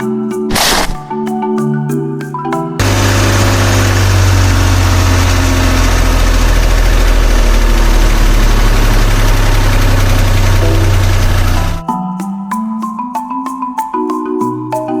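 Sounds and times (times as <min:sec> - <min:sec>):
tractor engine idling: 0:02.8 - 0:11.8.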